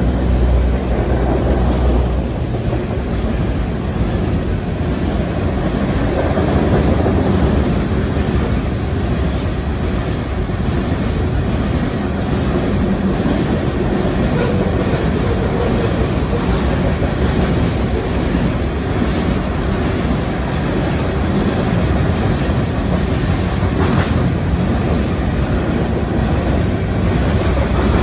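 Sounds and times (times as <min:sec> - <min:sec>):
train rumbling past: 0:00.0 - 0:28.0
wheels clacking over rail joints: 0:00.0 - 0:28.0.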